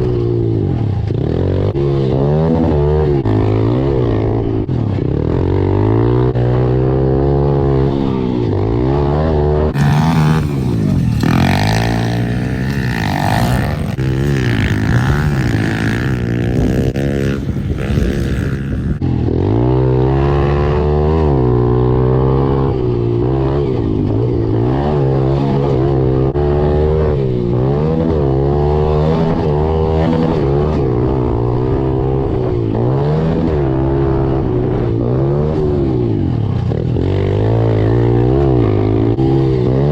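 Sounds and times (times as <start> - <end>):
pit bike engine revving: 0.0 - 39.9
rushing noise: 9.8 - 19.0.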